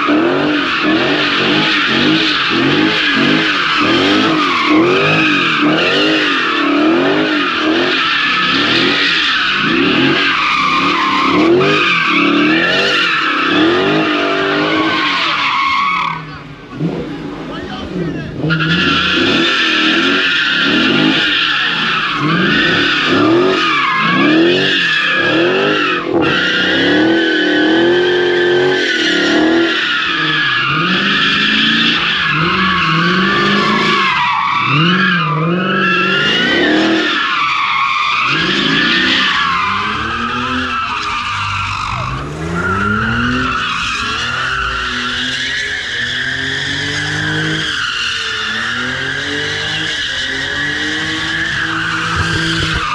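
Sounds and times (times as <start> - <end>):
car engine revving: 0.0 - 52.9
tyres squealing: 17.6 - 52.9.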